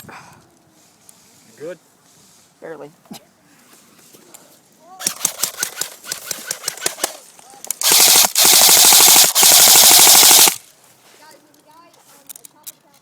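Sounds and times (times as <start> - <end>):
airsoft rifle full-auto bursts: 5.0 - 10.6.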